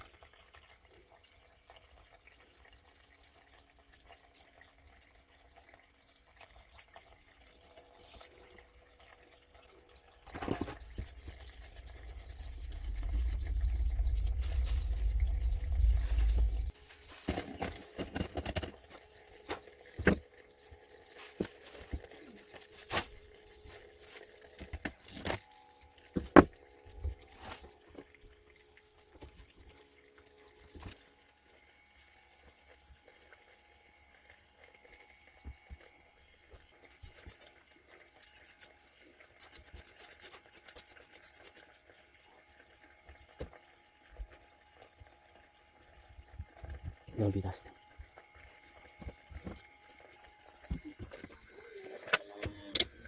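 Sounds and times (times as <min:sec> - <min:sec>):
faint steady whine: 0:10.3 - 0:28.6.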